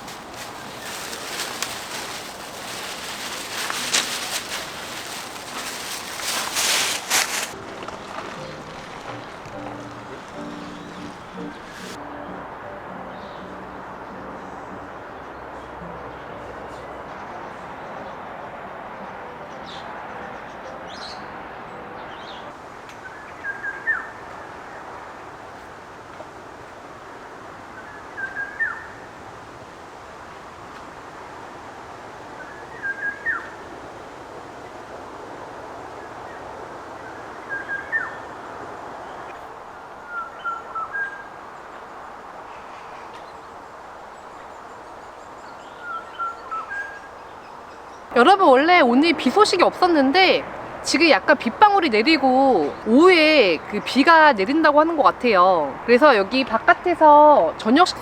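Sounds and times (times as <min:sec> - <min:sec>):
small birds chirping: 0:00.0 - 0:12.0
steady background hiss: 0:00.0 - 0:17.0, 0:18.7 - 0:58.0.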